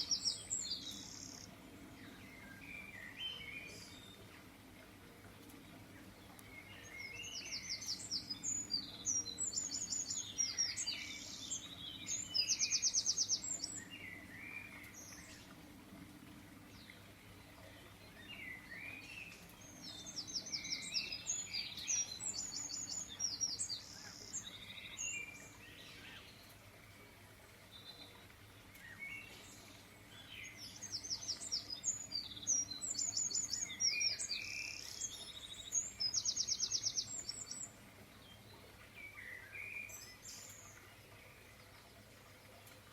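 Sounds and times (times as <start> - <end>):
songbird trilling and chirping: 18.2 - 26.0.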